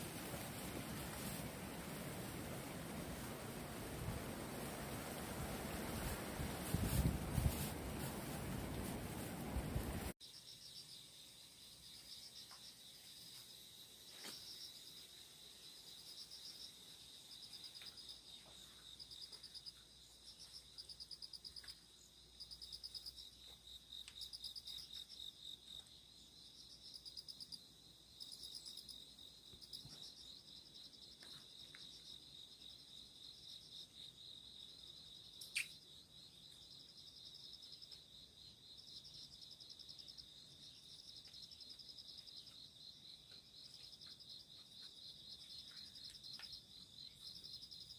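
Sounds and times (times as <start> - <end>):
insects trilling: 10.2 - 47.9
insect calling in short bursts: 35.3 - 36.0.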